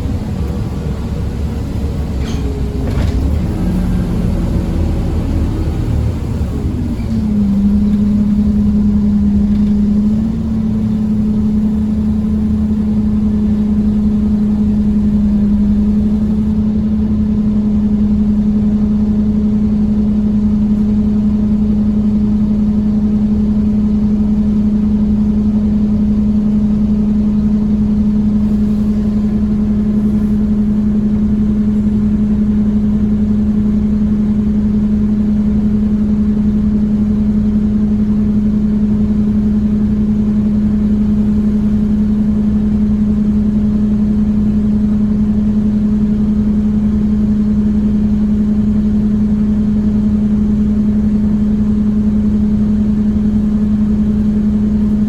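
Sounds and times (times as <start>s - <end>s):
road rumble: 0.0s - 23.7s, 25.2s - 55.0s
bus engine hum: 0.0s - 55.0s.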